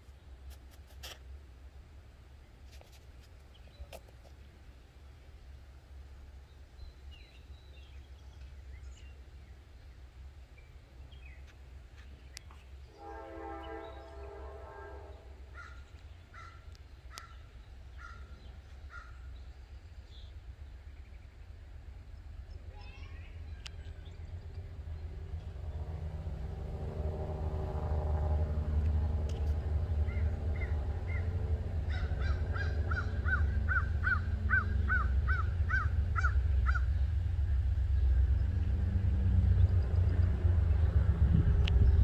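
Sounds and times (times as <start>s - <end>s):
diesel locomotive rumble: 4.4s - 42.0s
bird calling: 12.9s - 19.5s, 29.9s - 37.2s.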